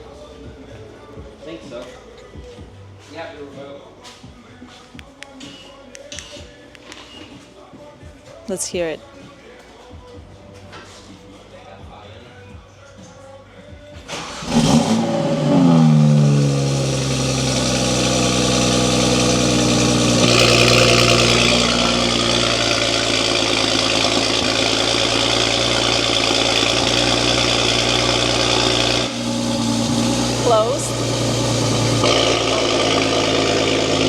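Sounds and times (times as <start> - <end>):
car engine starting and idling: 14.0 - 34.0.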